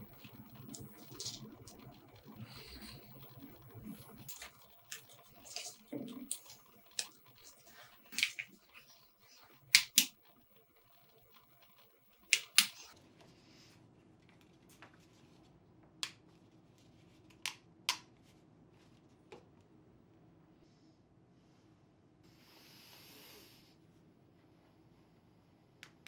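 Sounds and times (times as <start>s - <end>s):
sharp clicks and snaps: 0.0s - 13.0s.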